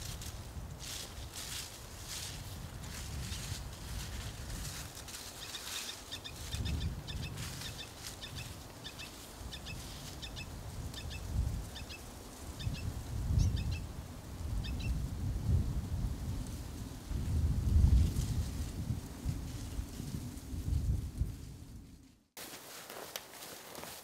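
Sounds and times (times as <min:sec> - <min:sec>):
wind gusts on microphone: 0:00.0 - 0:22.1
small bird chirping: 0:05.4 - 0:13.9, 0:14.6 - 0:15.0.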